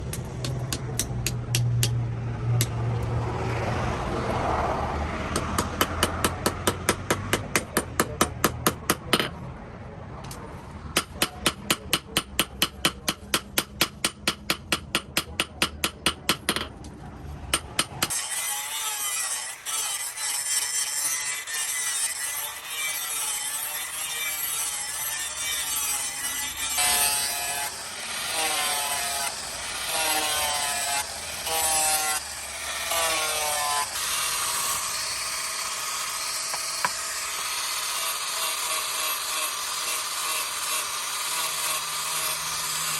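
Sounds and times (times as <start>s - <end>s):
hammer striking steel: 0.0s - 2.0s, 5.3s - 9.4s, 11.0s - 16.8s, 17.5s - 18.8s.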